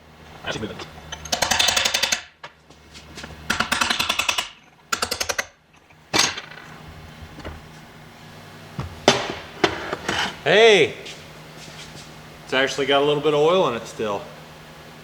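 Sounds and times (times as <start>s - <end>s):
impact wrench hammering: 1.2s - 2.3s, 3.5s - 5.5s.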